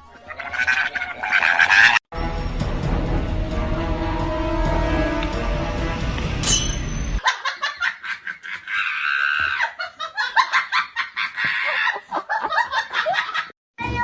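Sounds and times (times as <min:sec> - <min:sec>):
person giggling and laughing: 0:09.5 - 0:13.5.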